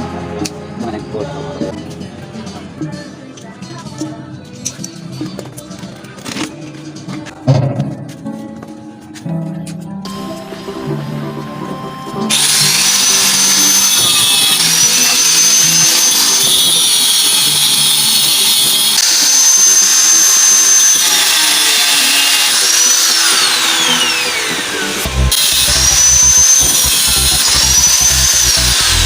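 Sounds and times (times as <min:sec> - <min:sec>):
grinding wheel grinding steel: 0:10.1 - 0:29.0.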